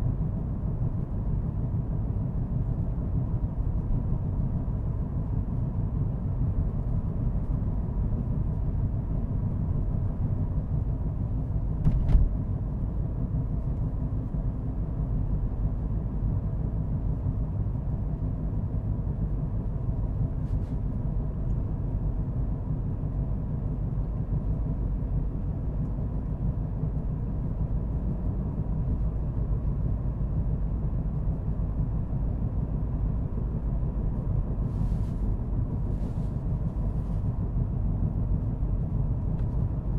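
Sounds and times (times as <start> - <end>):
road and engine noise: 0.0 - 39.9
short knock: 11.8 - 12.3.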